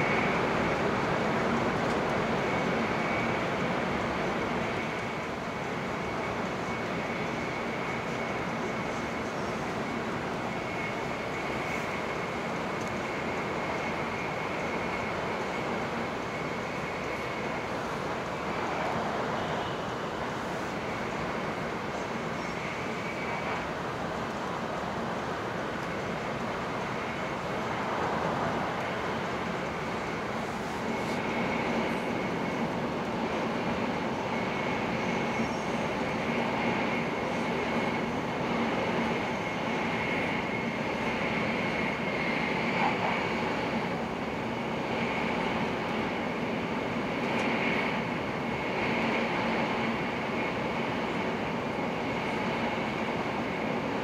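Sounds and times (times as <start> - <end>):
faint high whine: 0.0 - 54.0.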